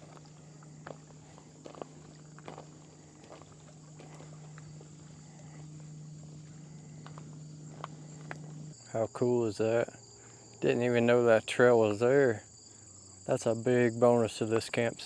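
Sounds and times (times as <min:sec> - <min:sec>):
footsteps crunching on dirt: 0:00.0 - 0:08.8
insect trilling: 0:00.0 - 0:15.0
low steady hum: 0:00.0 - 0:15.0.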